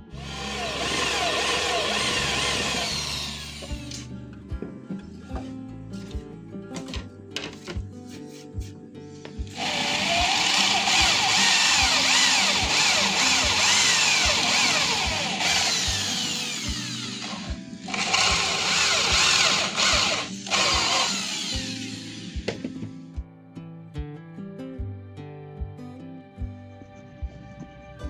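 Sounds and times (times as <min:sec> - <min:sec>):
power tool cutting wood: 0:00.0 - 0:04.1, 0:09.5 - 0:22.8
background music with steady beat: 0:00.0 - 0:28.0.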